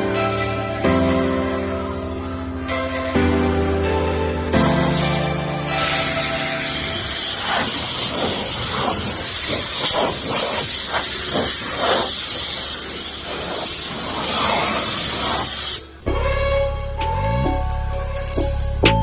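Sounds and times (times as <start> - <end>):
music: 0.0 - 8.9, 15.8 - 19.0
loud spraying hiss: 4.6 - 16.0.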